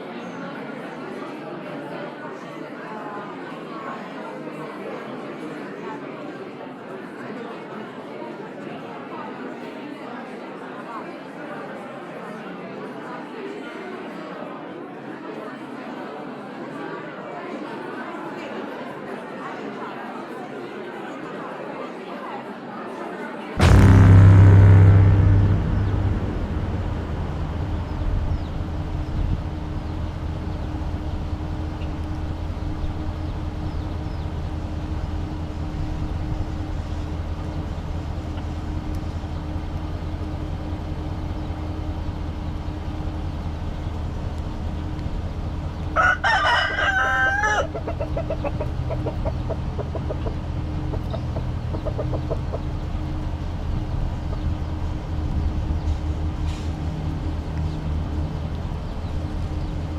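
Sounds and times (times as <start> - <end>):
steady low hum: 23.6 - 46.0, 52.6 - 59.9.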